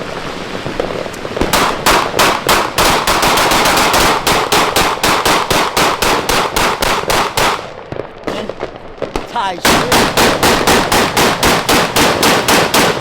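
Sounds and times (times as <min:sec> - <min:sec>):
crackling hiss: 0:00.0 - 0:13.0
fireworks bangs: 0:00.0 - 0:13.0.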